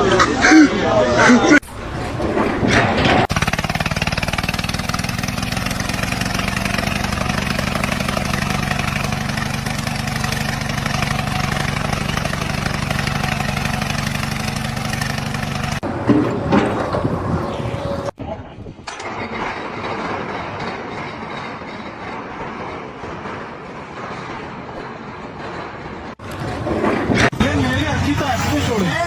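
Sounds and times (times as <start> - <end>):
engine running steadily: 1.6 - 18.2.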